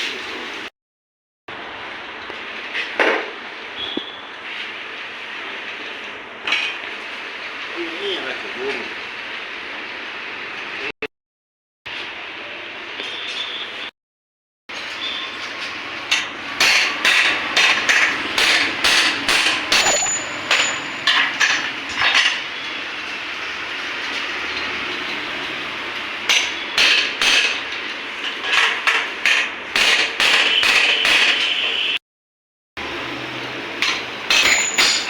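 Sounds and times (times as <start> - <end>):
hammer striking metal: 16.1 - 22.4, 26.3 - 27.6, 29.2 - 31.6, 33.8 - 35.0.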